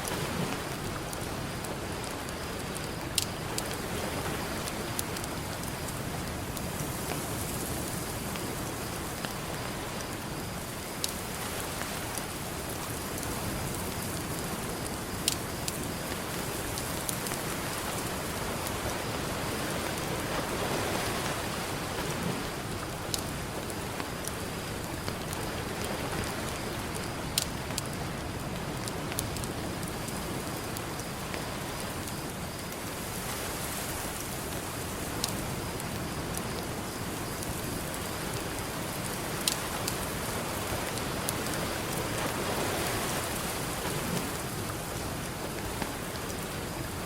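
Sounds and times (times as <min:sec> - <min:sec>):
campfire crackling: 0:00.0 - 0:47.0
ocean surf: 0:16.6 - 0:23.5, 0:38.4 - 0:46.0.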